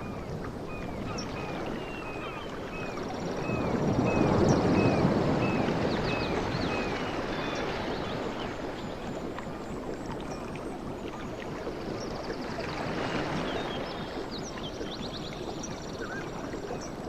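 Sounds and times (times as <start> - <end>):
sea waves washing in: 0.0 - 17.0.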